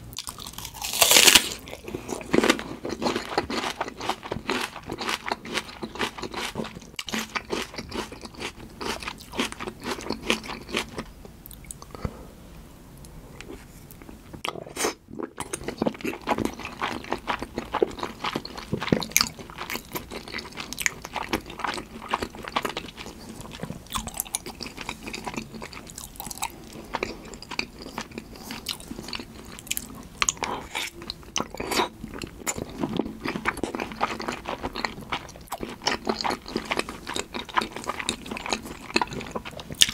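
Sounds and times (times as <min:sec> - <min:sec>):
close-miked chewing: 0:00.2 - 0:12.0, 0:13.4 - 0:39.9.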